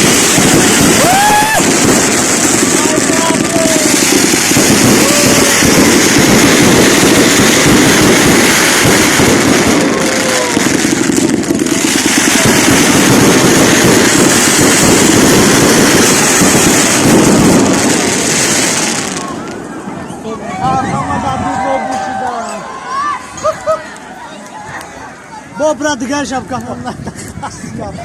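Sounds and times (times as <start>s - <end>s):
fireworks crackling bangs: 0.0s - 22.5s.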